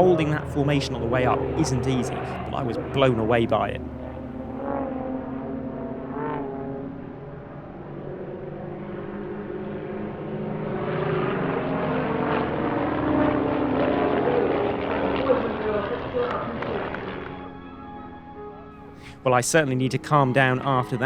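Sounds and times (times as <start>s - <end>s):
propeller aircraft engines droning: 0.0s - 21.0s.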